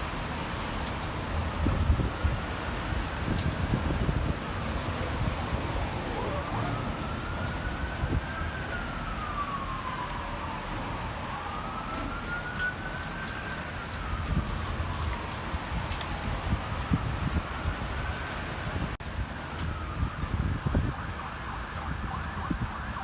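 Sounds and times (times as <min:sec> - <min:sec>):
emergency vehicle siren wailing: 0:00.0 - 0:23.0
wind rumbling on microphone: 0:00.0 - 0:23.0.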